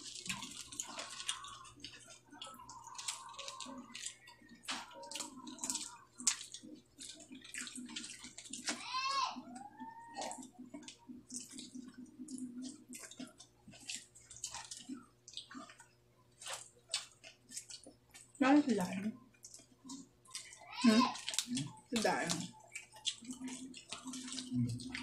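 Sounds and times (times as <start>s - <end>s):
wet chewing: 0.0s - 25.0s
mouth clicks and smacks: 9.6s - 18.0s.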